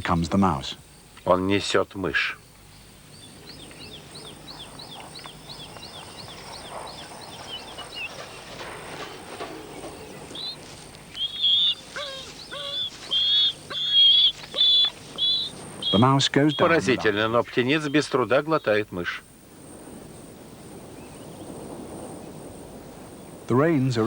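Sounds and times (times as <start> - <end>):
bird chirps and calls: 2.7 - 19.0.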